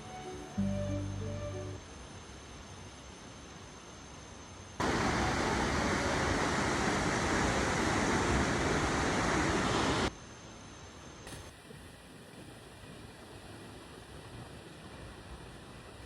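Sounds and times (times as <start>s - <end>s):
waterfall rushing: 4.8s - 10.1s.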